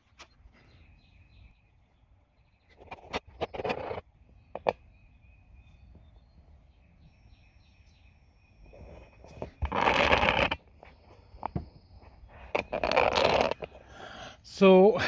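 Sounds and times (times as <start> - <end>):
faint bird chirps: 0.0 - 9.7.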